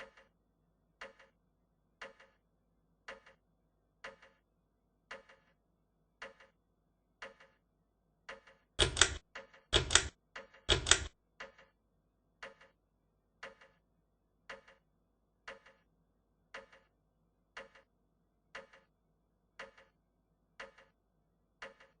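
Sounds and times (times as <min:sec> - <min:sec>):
fan double ticking: 0:08.8 - 0:09.2.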